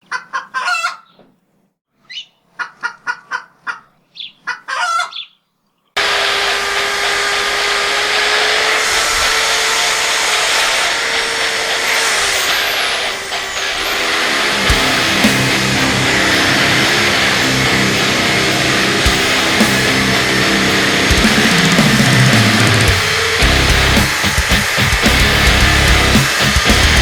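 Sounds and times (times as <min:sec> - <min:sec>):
loud steady rushing noise: 0:06.0 - 0:27.0.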